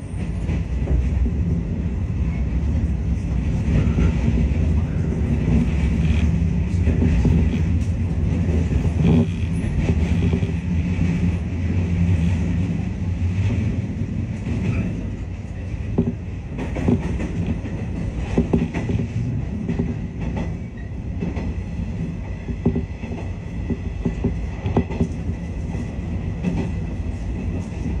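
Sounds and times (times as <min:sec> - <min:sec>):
train rumble: 0:00.0 - 0:28.0
wheels clicking over rail joints: 0:05.1 - 0:12.7, 0:15.8 - 0:25.8.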